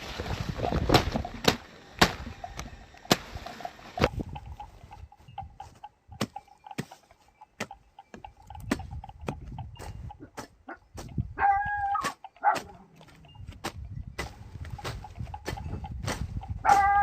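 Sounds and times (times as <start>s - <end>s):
chickens clucking: 0.4s - 17.0s
chicken drawn-out call: 11.4s - 12.6s, 16.6s - 17.0s.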